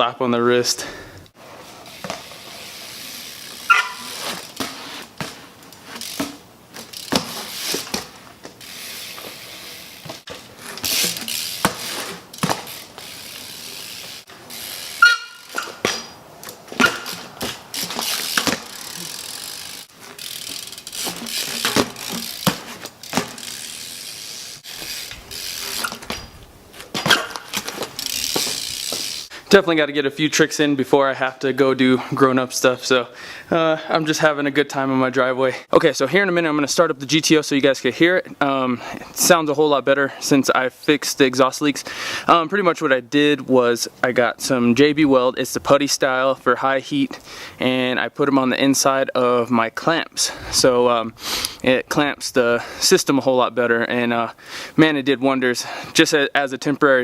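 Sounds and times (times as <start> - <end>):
bike hub ratcheting: 1.8 - 29.3
tyre scrapes: 3.6 - 8.4, 9.1 - 13.3
bike knocks: 3.6 - 9.4, 10.0 - 13.1, 15.0 - 19.0, 20.0 - 23.6, 25.7 - 29.2.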